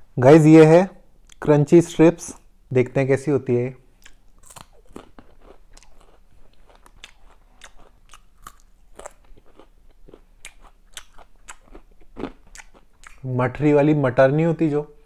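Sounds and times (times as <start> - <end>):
chewing crisp fried strips: 4.0 - 13.3.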